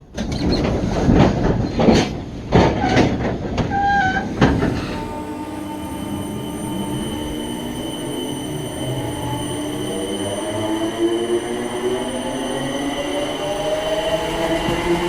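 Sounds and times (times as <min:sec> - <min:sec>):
train rumble with whining tones: 0:00.0 - 0:15.0
train clunking over rail joints: 0:00.1 - 0:09.4
train wheel squeal: 0:02.7 - 0:15.0.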